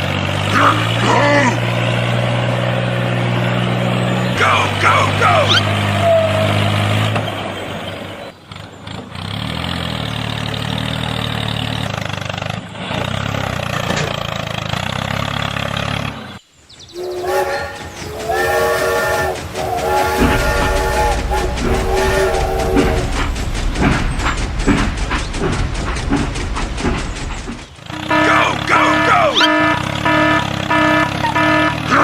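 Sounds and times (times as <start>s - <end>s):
multi-note horn blasts: 17.0s - 23.4s, 27.9s - 32.0s.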